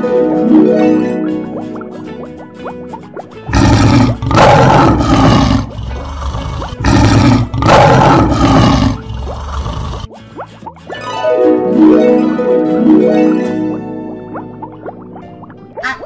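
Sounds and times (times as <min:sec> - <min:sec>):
lion roaring: 0:03.5 - 0:10.1.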